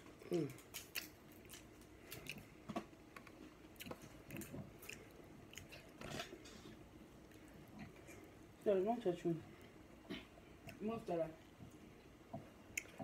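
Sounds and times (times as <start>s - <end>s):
person chewing with lip smacks: 0.1s - 6.5s.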